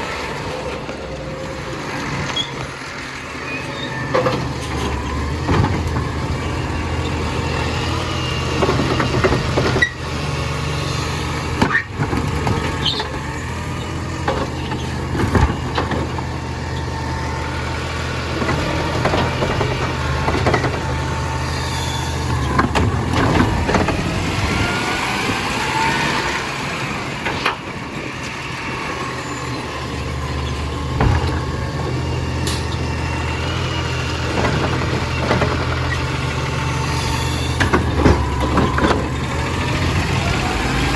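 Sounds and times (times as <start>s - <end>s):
garbage truck engine idling: 26.4s - 40.9s
metal clanks and knocks: 30.8s - 32.9s.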